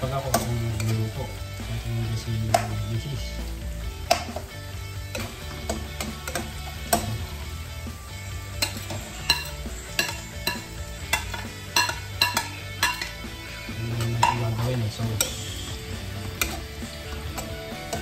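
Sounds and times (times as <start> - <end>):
onions sizzling: 0.0 - 18.0
metal spoon scraping wok: 8.4 - 18.0.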